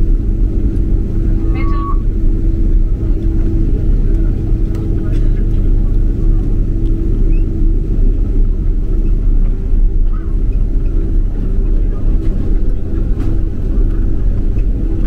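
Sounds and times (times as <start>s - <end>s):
airplane cabin engine rumble: 0.0s - 15.0s
faint humming tones: 0.0s - 15.0s.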